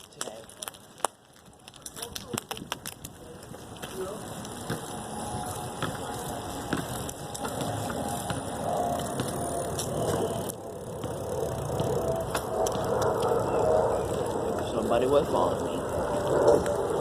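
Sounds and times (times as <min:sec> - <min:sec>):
bicycle tyres rolling on pavement: 0:00.0 - 0:17.0
bike rattling and clicking: 0:00.0 - 0:17.0
wind noise on microphone: 0:01.5 - 0:08.5.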